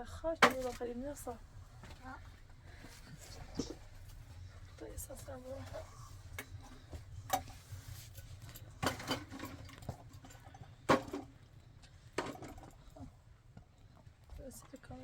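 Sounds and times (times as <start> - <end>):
low steady hum: 0.0 - 15.0
sharp knocks and clatters: 12.2 - 12.8.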